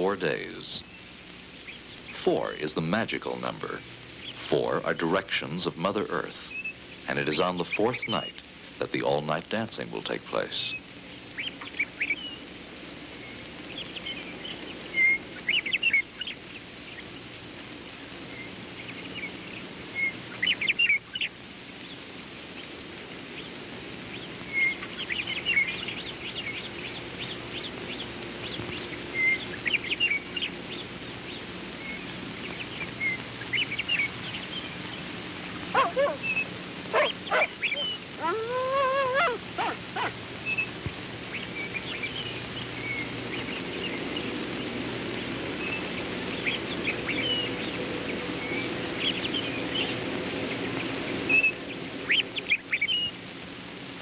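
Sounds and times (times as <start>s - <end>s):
small birds chirping: 0.0s - 53.4s
steady low hum: 0.0s - 54.0s
lower bird calls: 10.6s - 53.2s.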